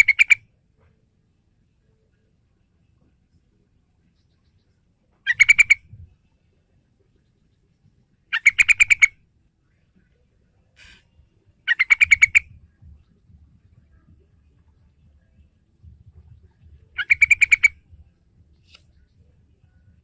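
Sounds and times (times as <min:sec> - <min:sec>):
bird singing: 0:00.0 - 0:00.4, 0:01.7 - 0:20.0.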